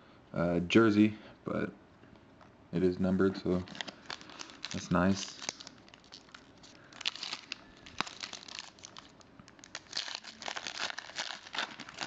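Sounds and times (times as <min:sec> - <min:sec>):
foil wrapper crinkling: 0:03.6 - 0:12.0.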